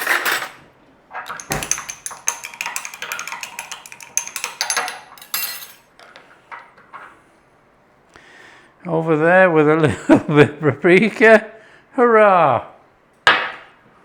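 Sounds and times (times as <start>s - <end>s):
metal utensil scraping in container: 1.2s - 5.8s
utensil knock: 1.3s - 5.2s.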